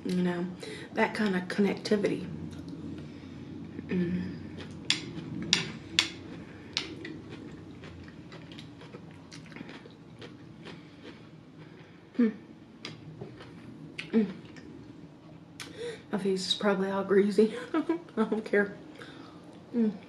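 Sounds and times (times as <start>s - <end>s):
chewing and eating: 2.5s - 15.8s.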